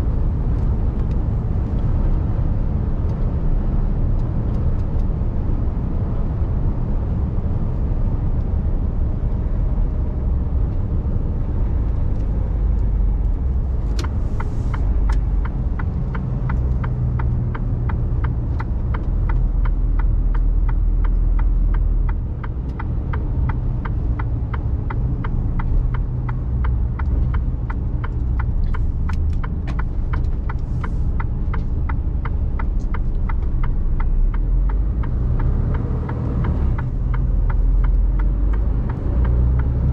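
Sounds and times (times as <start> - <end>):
truck engine and road rumble: 0.0 - 39.9
turn signal clicking: 11.4 - 39.9.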